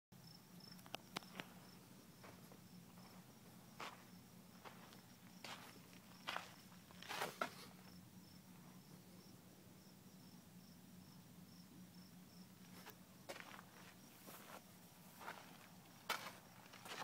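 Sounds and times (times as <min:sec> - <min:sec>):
crickets chirping: 0:00.2 - 0:17.0
footsteps: 0:01.3 - 0:07.7, 0:12.6 - 0:17.0.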